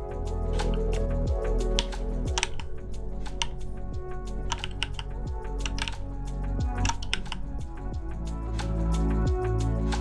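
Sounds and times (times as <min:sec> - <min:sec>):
background music with deep bass: 0:00.0 - 0:10.0.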